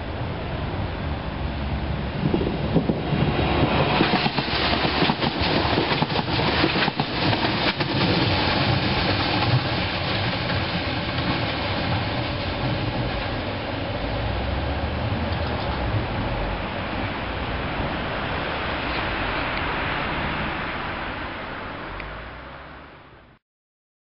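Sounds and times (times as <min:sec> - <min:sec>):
train rumble: 0:00.0 - 0:23.3
train wheels clattering: 0:02.2 - 0:13.5.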